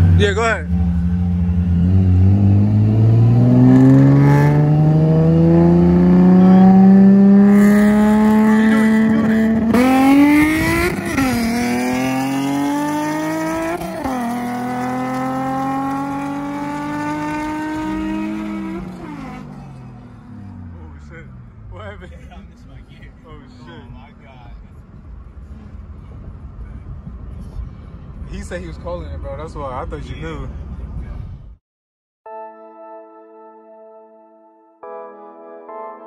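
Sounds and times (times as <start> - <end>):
car engine accelerating: 0.0 - 27.1.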